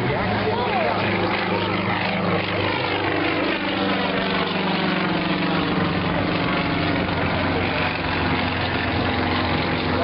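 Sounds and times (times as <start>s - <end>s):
propeller plane engine droning: 0.0s - 10.0s.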